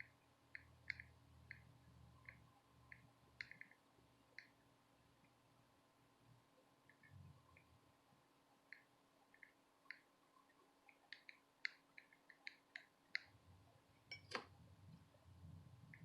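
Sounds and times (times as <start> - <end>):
faint small clicks: 0.0 - 3.8, 8.7 - 13.4.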